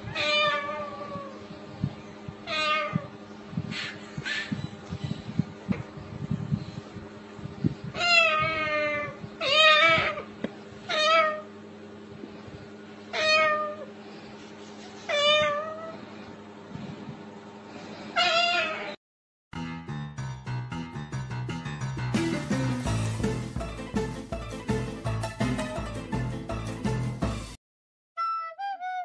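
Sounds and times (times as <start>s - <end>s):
cat meowing: 0.0s - 1.3s, 2.4s - 3.1s, 8.0s - 10.3s, 10.9s - 11.4s, 13.1s - 13.9s, 15.1s - 16.0s, 18.2s - 19.0s
faint background hum: 0.0s - 19.0s.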